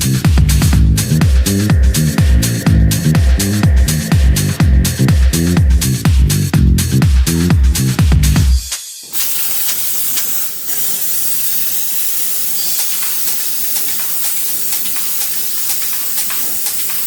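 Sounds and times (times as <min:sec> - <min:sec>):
pressure washer spraying water: 0:09.1 - 0:17.0.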